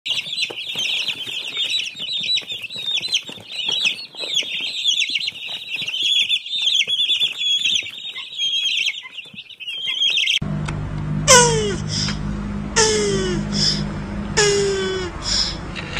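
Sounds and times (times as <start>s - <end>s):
small birds chirping: 0.1s - 10.4s.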